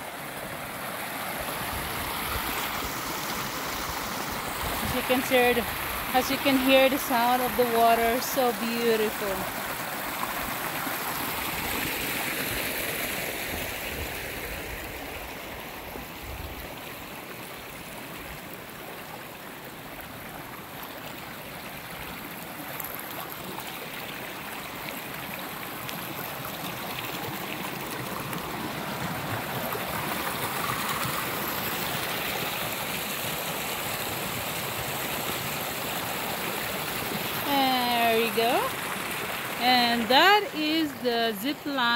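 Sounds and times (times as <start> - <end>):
running water flowing: 0.0 - 41.9.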